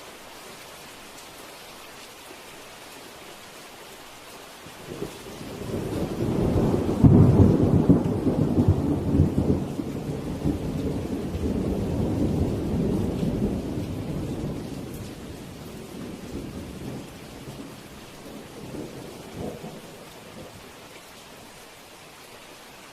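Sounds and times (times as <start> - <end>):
steady rain: 0.0 - 22.9
thunder rolling and cracking: 5.0 - 20.6.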